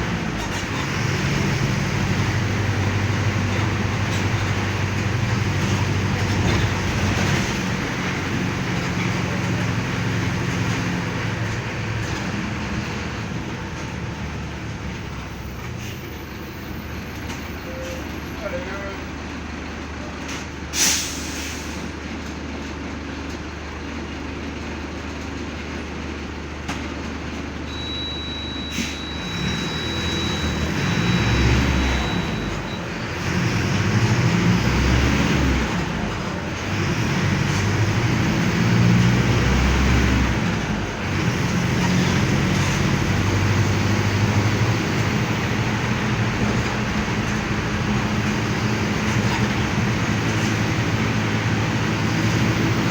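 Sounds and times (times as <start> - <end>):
bus diesel engine: 0.0 - 52.9
high steady beep: 27.7 - 32.8.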